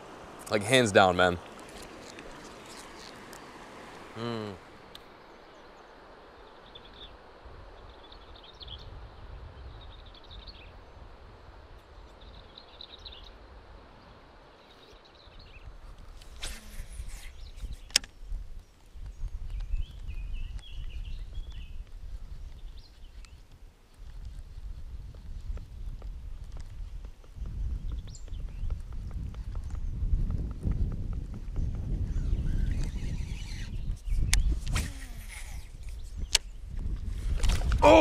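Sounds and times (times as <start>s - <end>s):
birds chirping: 0.0s - 8.9s, 16.3s - 23.5s, 27.2s - 36.8s.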